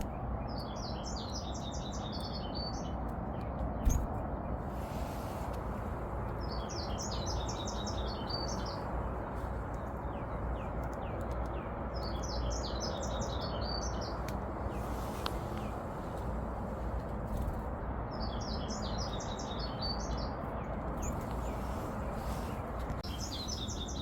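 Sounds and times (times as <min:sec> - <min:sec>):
songbird twittering: 0:00.0 - 0:02.9, 0:06.4 - 0:08.9, 0:18.1 - 0:20.4, 0:21.0 - 0:24.0
thin bird chirps: 0:00.0 - 0:16.2, 0:18.1 - 0:24.0.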